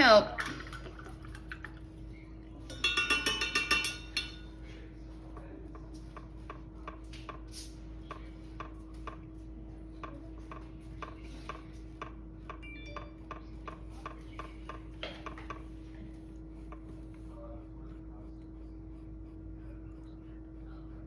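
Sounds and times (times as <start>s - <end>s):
paintbrush clinking in water cup: 2.6s - 7.4s.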